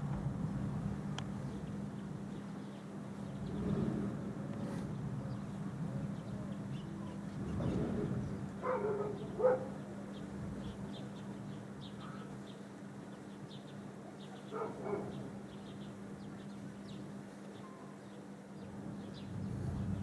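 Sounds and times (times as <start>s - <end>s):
dog barking: 8.6s - 9.8s, 14.5s - 15.3s.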